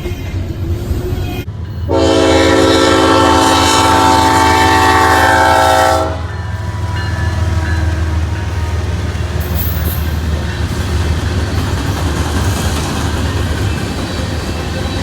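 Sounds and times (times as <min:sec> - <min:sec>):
train rumble: 0:00.0 - 0:15.0
locomotive horn blast: 0:01.9 - 0:09.8.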